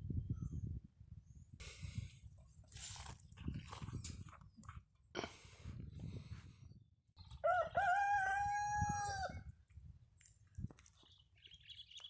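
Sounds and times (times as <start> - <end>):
rooster crowing: 7.4 - 9.4.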